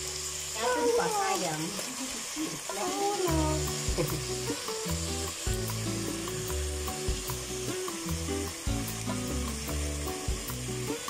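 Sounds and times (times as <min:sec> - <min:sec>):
food sizzling in a pot: 0:00.0 - 0:11.0
music with low held notes: 0:02.8 - 0:11.0.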